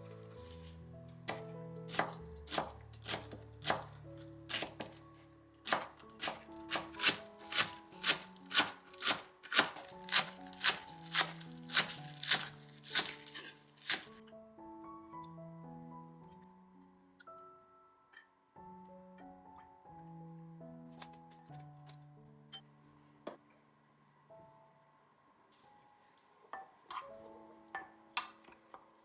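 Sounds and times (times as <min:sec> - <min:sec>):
soft background music: 0:00.0 - 0:29.0
knife chopping on cutting board: 0:01.3 - 0:05.0, 0:05.6 - 0:14.2.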